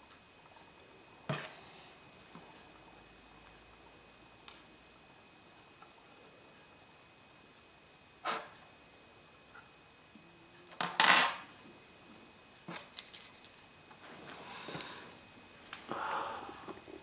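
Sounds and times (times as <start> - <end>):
metal parts clattering on a surface: 10.8 - 11.4, 12.7 - 13.6.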